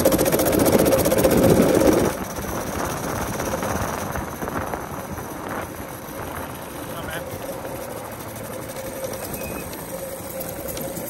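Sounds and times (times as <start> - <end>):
small motorbike engine: 0.0 - 11.0.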